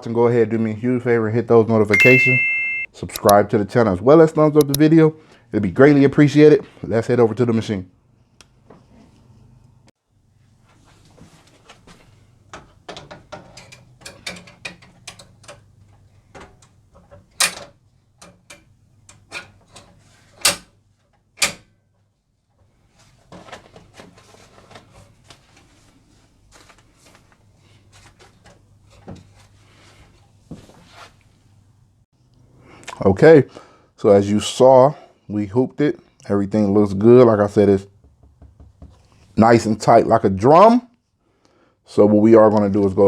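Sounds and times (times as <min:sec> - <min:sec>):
sharp knocks: 0:38.0 - 0:39.0.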